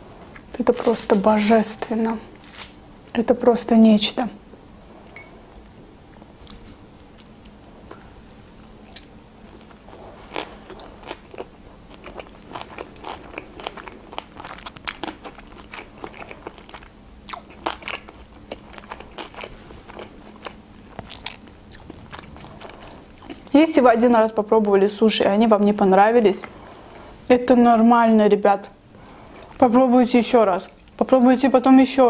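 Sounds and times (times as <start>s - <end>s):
person chewing: 8.8s - 23.5s.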